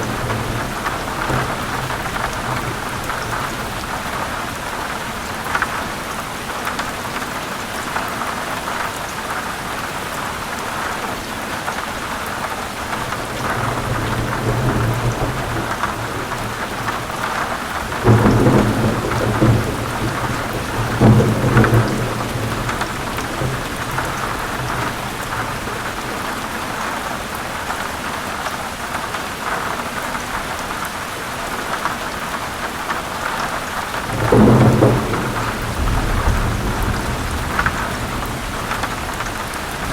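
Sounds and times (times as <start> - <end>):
rolling thunder: 0.0 - 4.6, 12.9 - 26.2, 33.9 - 39.9
heavy rain: 0.0 - 39.9.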